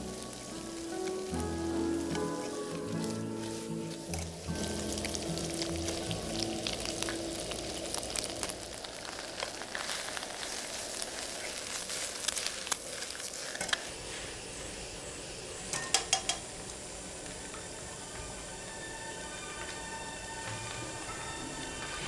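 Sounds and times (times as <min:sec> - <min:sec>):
chopsticks clicking against wok: 0:00.0 - 0:09.6, 0:15.7 - 0:17.6
noodles sizzling in a wok: 0:00.0 - 0:22.0.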